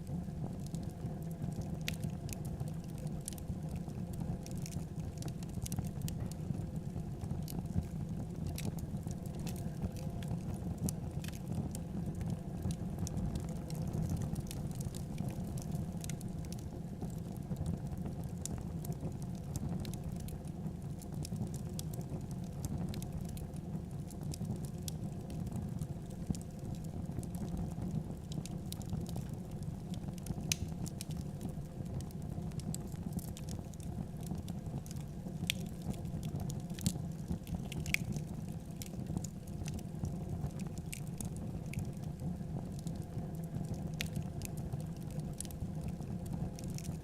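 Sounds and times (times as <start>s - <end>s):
fire crackling and popping: 0.0s - 47.0s
fire rumbling: 0.0s - 47.0s.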